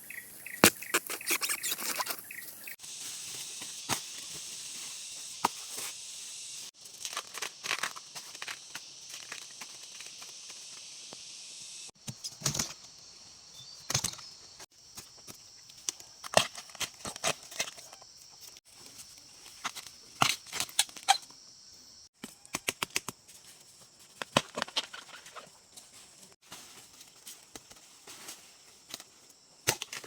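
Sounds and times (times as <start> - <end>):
bamboo snapping: 0.6 - 2.2, 22.5 - 23.2, 28.9 - 30.0.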